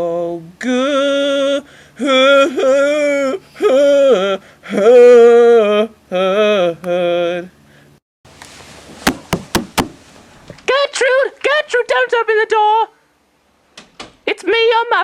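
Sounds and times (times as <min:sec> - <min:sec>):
person singing wordless tune: 0:00.0 - 0:07.6
knock on a door: 0:09.1 - 0:10.0.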